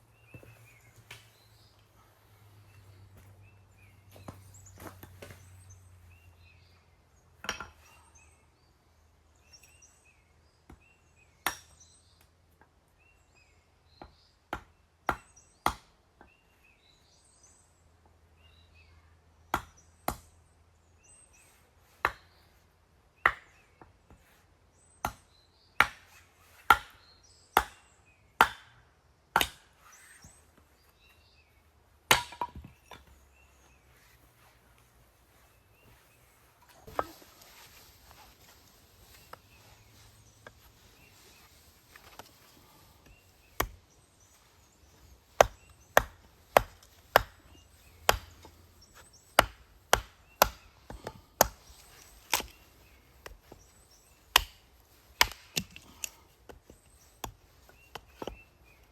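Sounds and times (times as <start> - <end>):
blade chopping wood: 25.8 - 27.0, 29.4 - 29.7, 32.1 - 33.0, 43.4 - 43.8, 45.3 - 53.6, 54.3 - 58.4.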